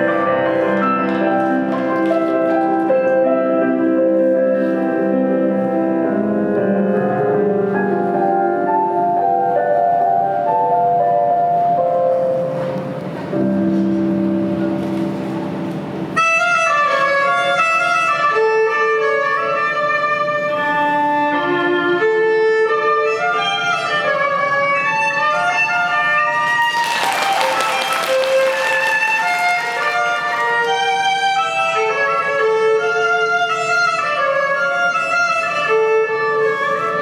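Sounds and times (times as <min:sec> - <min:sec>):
violin-led instrumental music: 0:16.0 - 0:26.4, 0:29.2 - 0:37.0.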